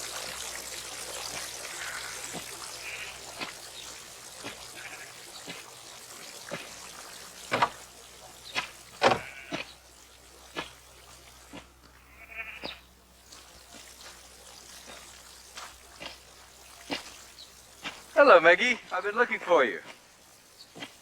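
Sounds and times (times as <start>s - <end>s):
sheep bleating: 1.7s - 3.3s, 4.7s - 5.3s, 9.1s - 9.7s, 12.0s - 12.8s.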